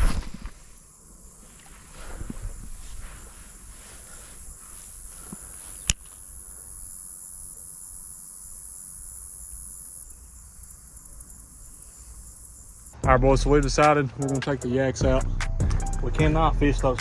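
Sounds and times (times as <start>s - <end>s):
insects singing: 0.0s - 13.0s.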